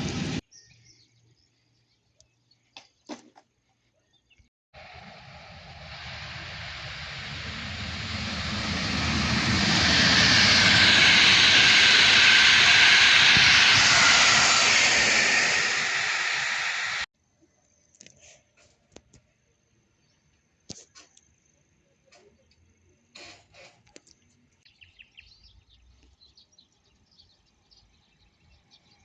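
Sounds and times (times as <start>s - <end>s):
train passing on rails: 0.0s - 0.4s, 4.8s - 17.1s.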